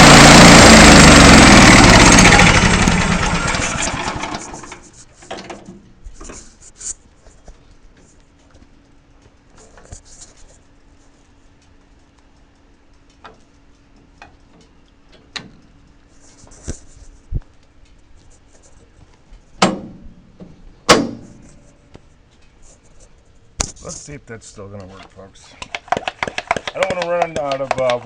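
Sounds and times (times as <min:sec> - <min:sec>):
loud clunks: 0:19.6 - 0:20.0, 0:20.9 - 0:21.5.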